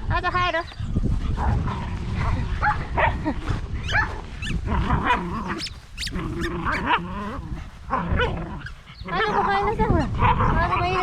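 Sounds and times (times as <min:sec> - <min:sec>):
steady low rumble: 0:00.0 - 0:10.4
puppies whining and yipping: 0:03.8 - 0:07.3.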